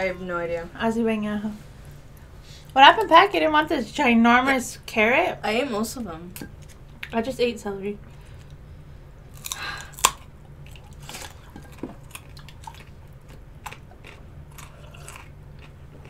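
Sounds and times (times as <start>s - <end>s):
person chewing and crunching food: 9.3s - 16.0s.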